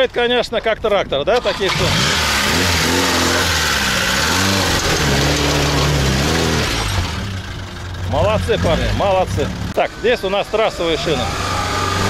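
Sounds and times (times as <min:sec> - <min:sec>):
car engine revving hard: 0:01.4 - 0:07.5, 0:10.8 - 0:12.0
tyres spinning in sand: 0:01.5 - 0:07.4.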